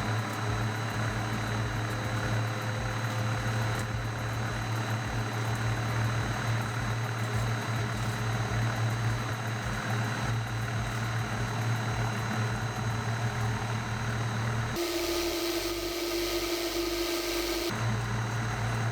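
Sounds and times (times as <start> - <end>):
centrifuge motor hum and whirring: 0.0 - 18.9.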